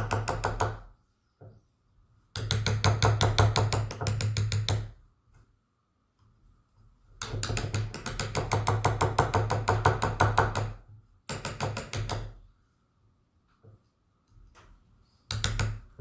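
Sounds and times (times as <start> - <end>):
mallet tapping chisel into wood: 0.0 - 0.9, 2.4 - 4.9, 7.2 - 12.4, 15.3 - 16.0.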